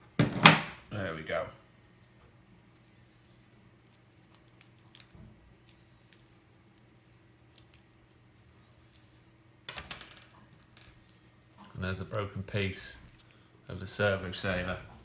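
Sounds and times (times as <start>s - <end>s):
small parts clattering: 3.8s - 5.2s, 9.7s - 11.3s.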